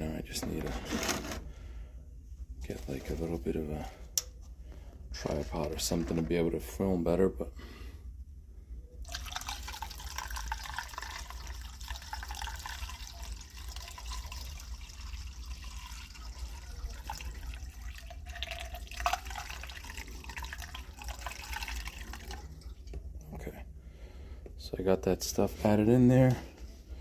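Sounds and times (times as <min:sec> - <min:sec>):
liquid pouring: 0:09.0 - 0:23.2.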